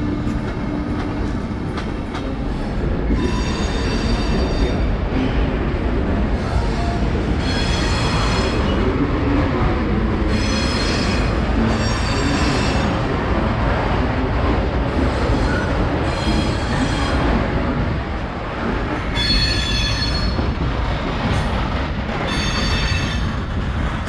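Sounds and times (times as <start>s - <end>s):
train rumbling: 0.0s - 24.0s
train wheels squealing: 3.1s - 4.8s, 6.4s - 8.8s, 10.3s - 13.0s, 15.2s - 17.3s, 19.1s - 20.4s, 22.2s - 23.3s.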